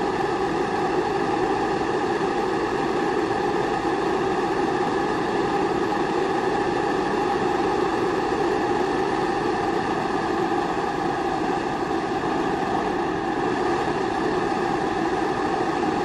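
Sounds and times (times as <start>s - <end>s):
pressure stove burning: 0.0s - 16.0s.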